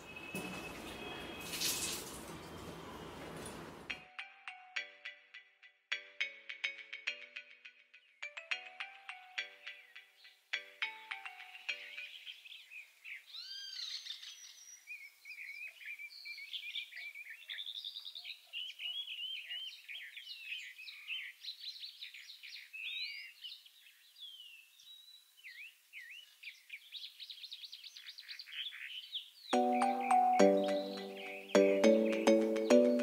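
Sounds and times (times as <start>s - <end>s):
birds chirping and whistling: 0.0s - 1.7s, 11.4s - 33.0s.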